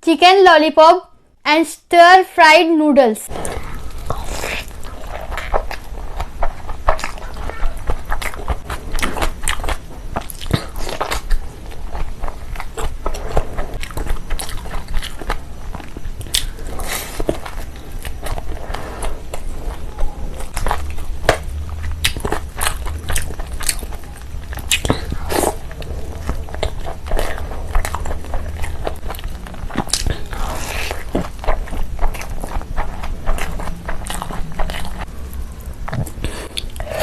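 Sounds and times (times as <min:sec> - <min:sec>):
person chewing food: 0:03.3 - 0:37.0.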